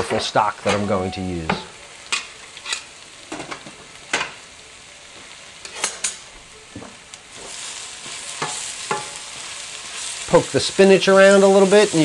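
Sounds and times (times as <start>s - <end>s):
vegetables sizzling in a pan: 0.0s - 12.0s
wooden spoon tapping a pan: 8.4s - 9.2s.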